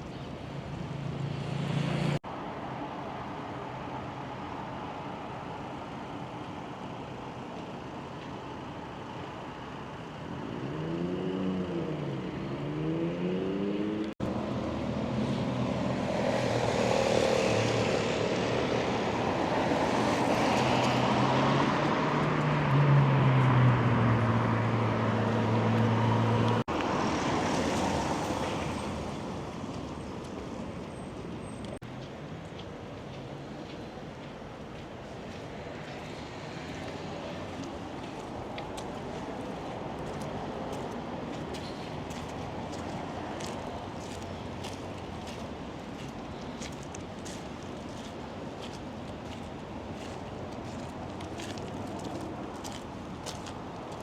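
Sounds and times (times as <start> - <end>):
motor vehicles driving past: 0.8 - 2.2, 9.4 - 33.9.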